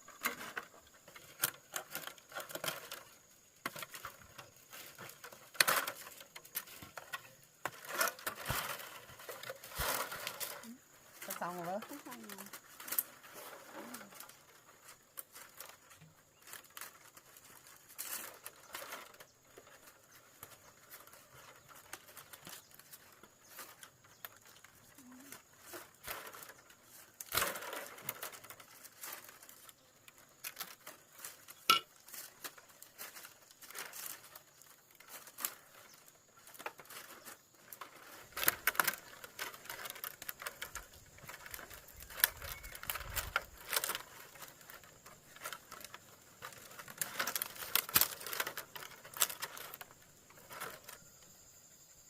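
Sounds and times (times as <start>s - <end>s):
hands tapping brittle material: 31.1s - 32.6s.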